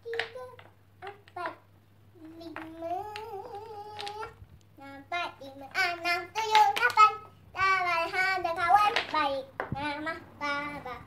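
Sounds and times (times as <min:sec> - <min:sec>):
girl singing: 0:00.0 - 0:11.0
wooden toy blocks clacking: 0:00.1 - 0:01.6, 0:02.5 - 0:04.4, 0:05.7 - 0:07.1, 0:08.8 - 0:09.8.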